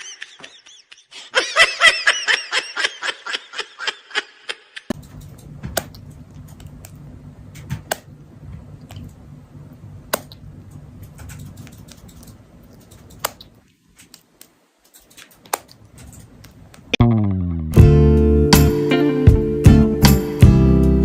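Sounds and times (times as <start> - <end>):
low steady hum: 5.0 - 14.8.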